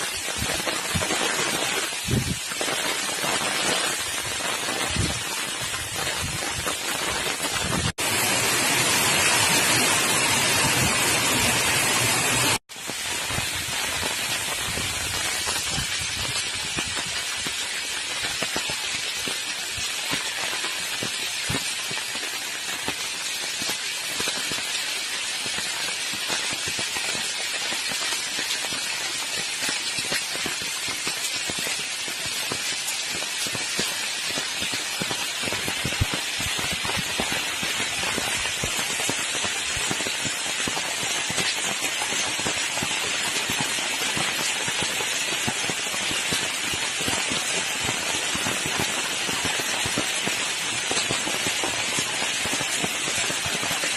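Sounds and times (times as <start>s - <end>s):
heavy rain hissing: 0.0s - 53.9s
raindrops pattering: 0.0s - 53.9s.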